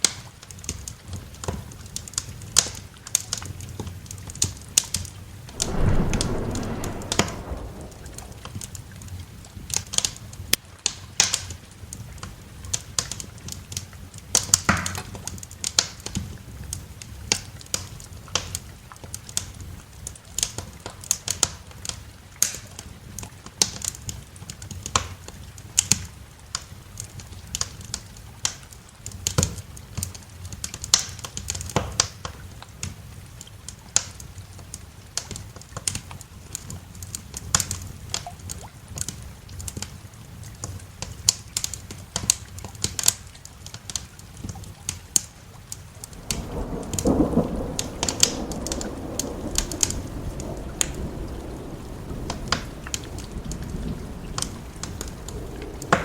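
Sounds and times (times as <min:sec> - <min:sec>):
wood fire crackling: 0:05.5 - 0:09.1, 0:43.9 - 0:56.0.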